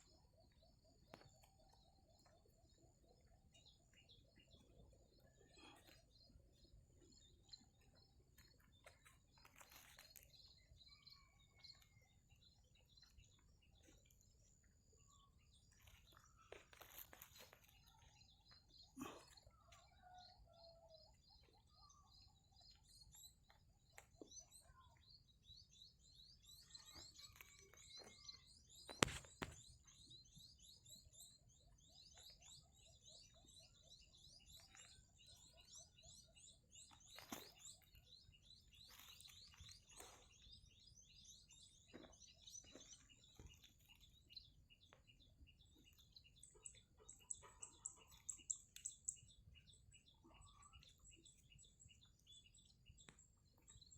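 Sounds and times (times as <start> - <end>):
high bird chirps: 9.4 - 12.0.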